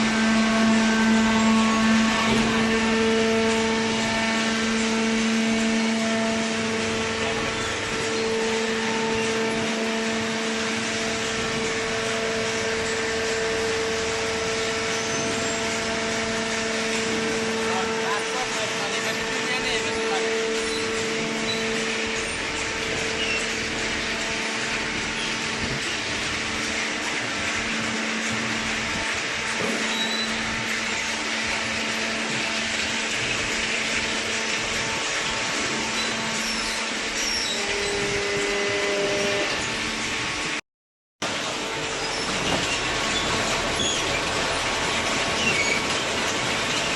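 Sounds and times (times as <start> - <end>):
baler machine humming: 0.0 - 40.2.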